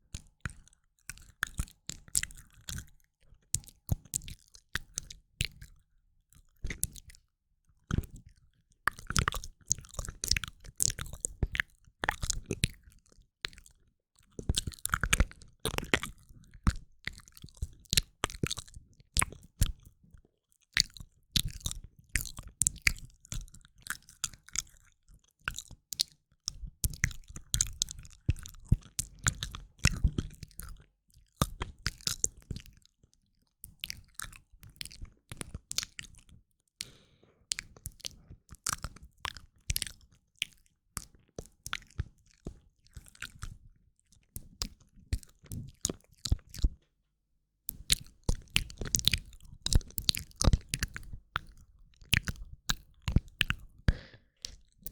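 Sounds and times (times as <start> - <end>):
wet mouth clicks and smacks: 0.2 - 3.0, 8.9 - 13.7, 25.5 - 30.8, 33.7 - 43.6, 44.3 - 46.7, 47.7 - 54.9.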